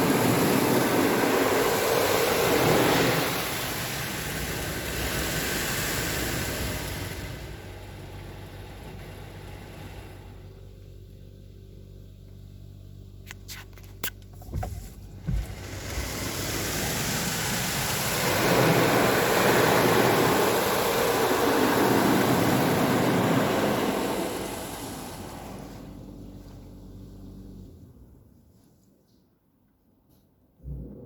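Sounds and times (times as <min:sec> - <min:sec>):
high-pressure water spray on car: 0:00.0 - 0:10.5, 0:14.8 - 0:26.2
dull thumps: 0:14.4 - 0:16.1.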